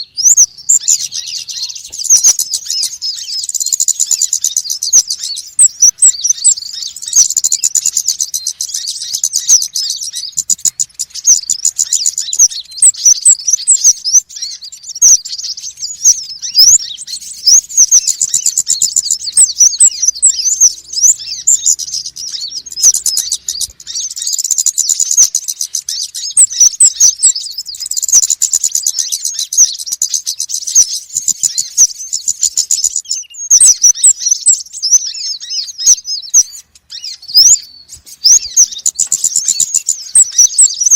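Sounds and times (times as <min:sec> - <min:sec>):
small birds chirping and twittering: 0:00.0 - 0:40.9.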